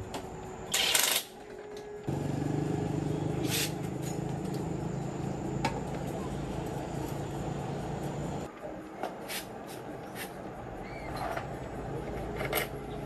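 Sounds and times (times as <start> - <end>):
short hissing: 3.4 - 3.8.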